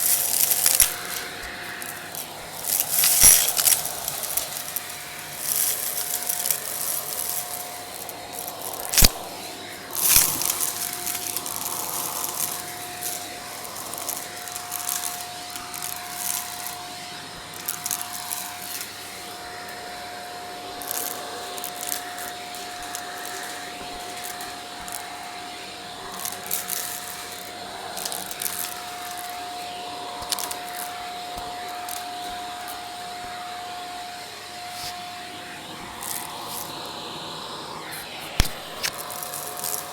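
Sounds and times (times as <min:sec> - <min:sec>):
debris crackling in vacuum: 0:00.0 - 0:19.5, 0:20.7 - 0:29.6
vacuum cleaner running: 0:00.0 - 0:39.9.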